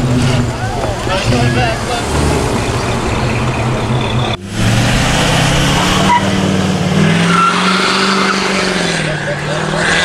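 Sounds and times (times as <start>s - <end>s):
truck engine running steadily: 0.0s - 6.9s
vehicle engines at low revs: 0.0s - 10.0s.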